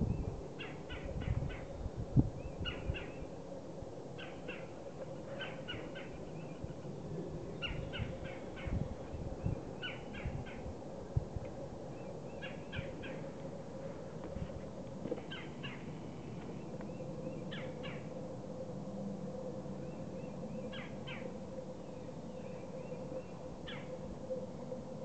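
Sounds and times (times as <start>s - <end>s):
bird calling: 0.5s - 1.8s, 4.2s - 6.9s, 7.5s - 10.7s, 11.9s - 14.0s, 15.1s - 18.1s, 19.8s - 24.0s.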